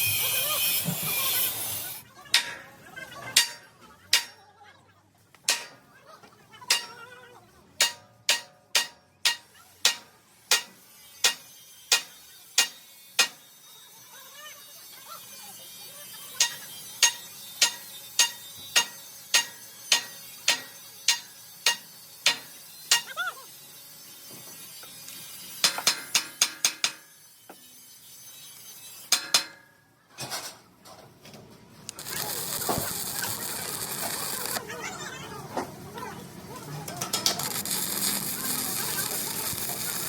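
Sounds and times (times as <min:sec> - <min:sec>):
hammer striking steel: 0:02.3 - 0:04.4, 0:05.5 - 0:05.9, 0:06.7 - 0:07.1, 0:07.8 - 0:13.5, 0:16.4 - 0:23.2, 0:25.6 - 0:27.1, 0:29.1 - 0:29.8.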